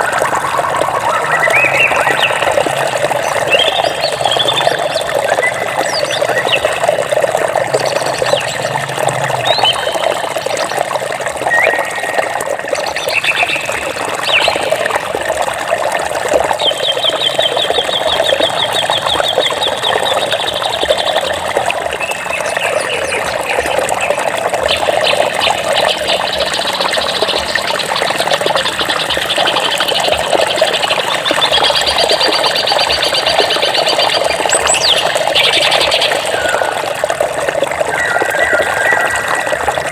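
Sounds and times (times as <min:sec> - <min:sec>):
water flowing: 0:00.0 - 0:39.9
small birds chirping and trilling: 0:01.0 - 0:08.8, 0:09.4 - 0:10.8, 0:12.8 - 0:14.8, 0:16.6 - 0:36.8.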